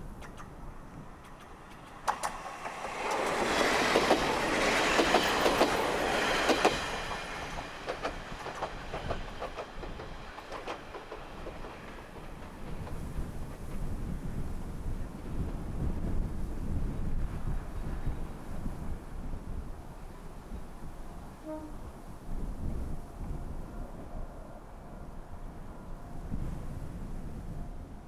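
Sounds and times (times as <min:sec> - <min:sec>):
railcar passing: 0:00.0 - 0:28.0
wind buffeting microphone: 0:00.0 - 0:28.0
wheels clattering over rail joints: 0:00.1 - 0:13.8.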